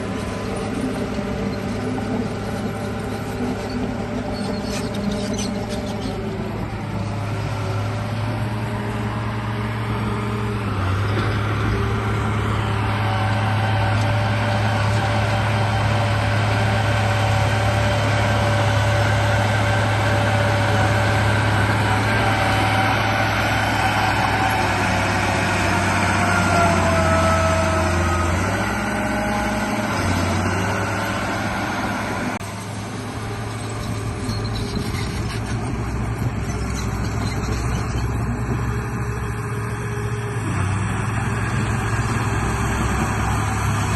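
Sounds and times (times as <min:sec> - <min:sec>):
toy bulldozer motor whining: 0:00.0 - 0:06.7, 0:12.9 - 0:32.0, 0:33.2 - 0:40.2.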